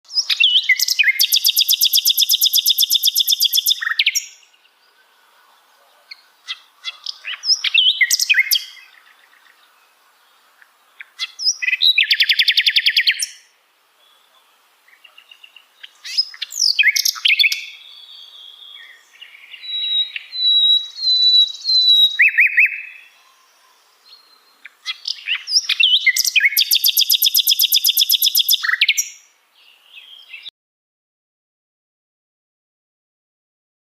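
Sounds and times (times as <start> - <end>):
bird chirps and whistles: 0.1 - 4.3, 7.3 - 8.8, 19.6 - 23.0, 24.9 - 29.2
bird trilling: 0.2 - 4.3, 19.5 - 23.0, 24.8 - 29.1.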